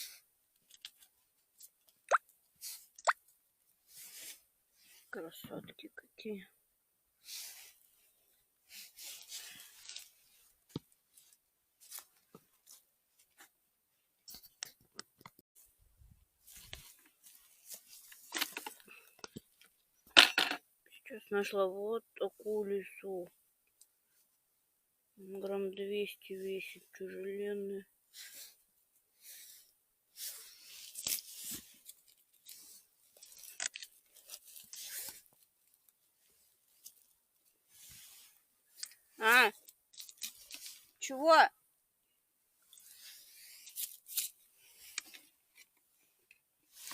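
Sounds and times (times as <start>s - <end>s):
mushroom being handled: 30.4s - 41.0s
rustling and snapping forest litter: 30.9s - 35.3s, 39.6s - 40.8s.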